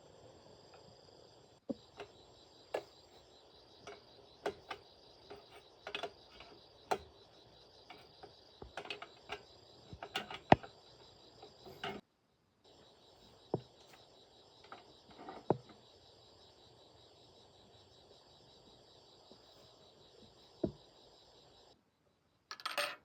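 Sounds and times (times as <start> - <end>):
crickets chirring: 0.0 - 23.0
sharp clicks and light knocks: 3.8 - 10.8, 11.4 - 12.0.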